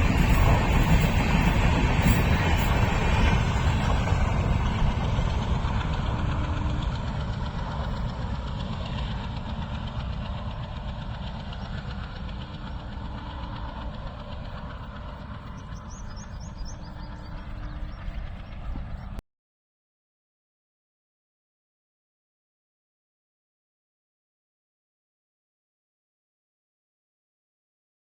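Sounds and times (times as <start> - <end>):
diesel locomotive chugging: 0.0 - 19.2.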